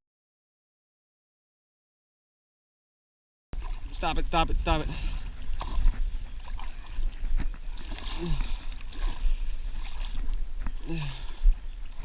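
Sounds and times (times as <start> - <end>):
water sloshing and splashing: 3.6 - 12.0
wind rumbling on microphone: 3.6 - 12.0.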